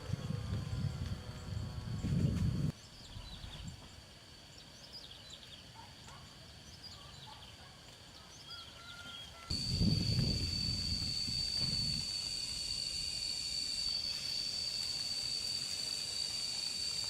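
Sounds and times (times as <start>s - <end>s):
low rumble of noise: 0.0s - 3.8s, 9.5s - 17.0s
high-pitched drone: 9.5s - 17.0s.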